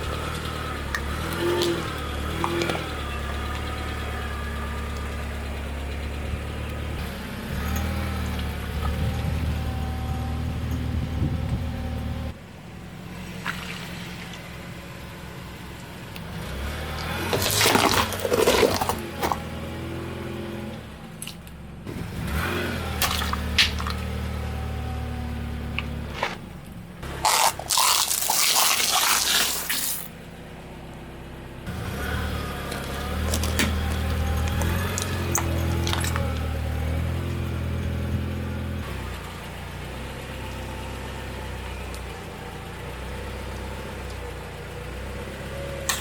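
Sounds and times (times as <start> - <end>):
car engine running: 0.0 - 46.0
tyre crushing objects: 17.0 - 19.5, 27.0 - 30.1, 32.7 - 36.6.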